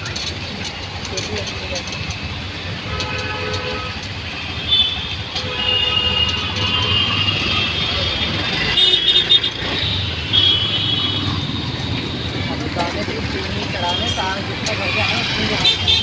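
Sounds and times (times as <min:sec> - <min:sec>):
auto-rickshaw engine running: 0:00.0 - 0:16.0
vehicle horns beeping: 0:02.8 - 0:11.5, 0:13.6 - 0:14.5, 0:15.5 - 0:16.0.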